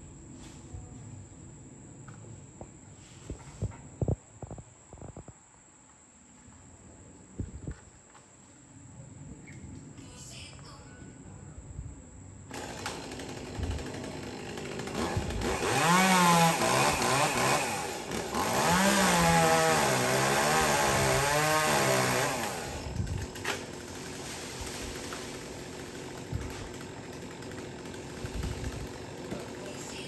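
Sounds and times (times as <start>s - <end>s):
chainsaw engine revving: 12.5s - 30.0s.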